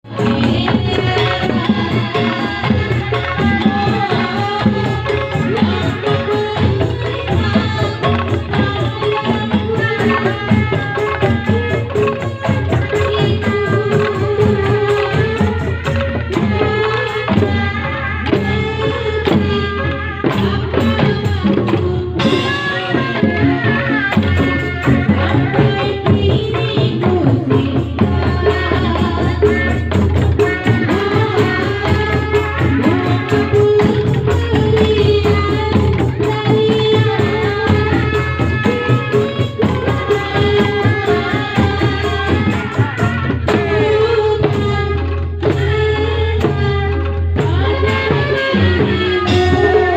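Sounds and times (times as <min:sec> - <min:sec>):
drums playing driving rhythm: 0:00.0 - 0:49.9
wavering melody line: 0:49.2 - 0:49.9.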